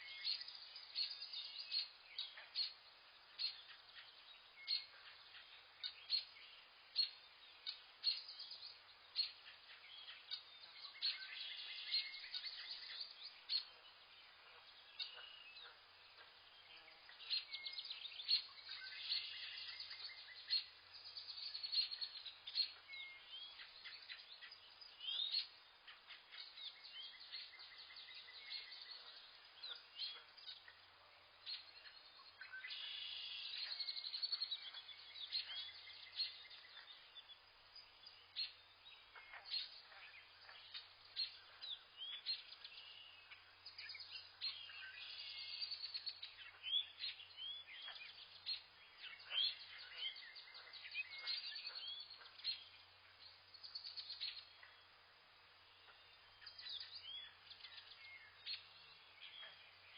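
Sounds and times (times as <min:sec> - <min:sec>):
forest birds chirping: 0:00.0 - 0:59.9.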